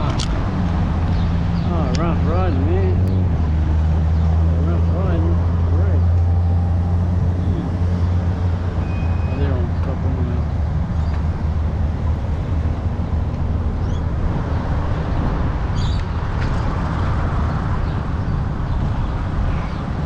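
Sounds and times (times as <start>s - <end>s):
bike tyre and road noise: 0.0s - 20.0s
wind buffeting microphone: 0.0s - 20.0s.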